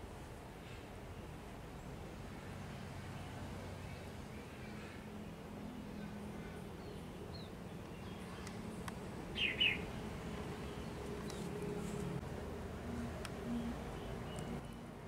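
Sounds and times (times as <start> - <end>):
low steady hum: 0.0 - 15.0
small bird chirping: 9.3 - 9.9.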